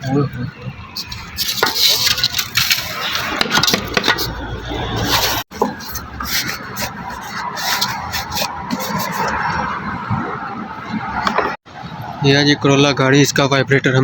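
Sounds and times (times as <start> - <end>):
scraping: 0.9 - 10.0.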